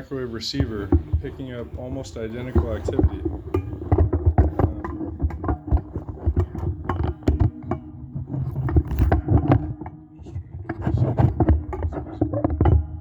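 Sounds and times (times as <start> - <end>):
crackling static pops: 0.0 - 9.8
electrical hum: 0.0 - 12.1.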